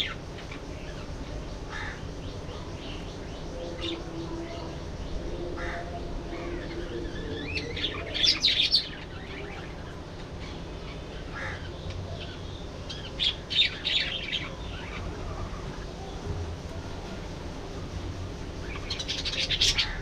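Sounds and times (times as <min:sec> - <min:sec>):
low background noise: 0:00.0 - 0:20.0
budgerigars chirping: 0:18.8 - 0:20.0.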